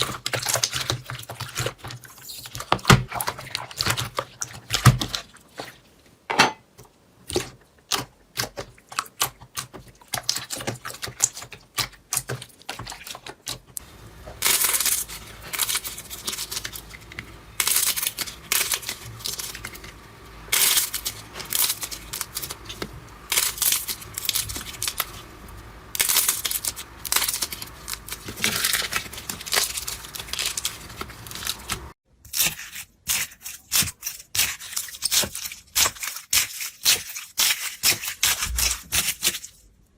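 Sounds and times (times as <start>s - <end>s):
slime squishing: 0.0s - 5.9s, 7.2s - 39.7s
slime crackling and popping: 25.9s - 39.4s.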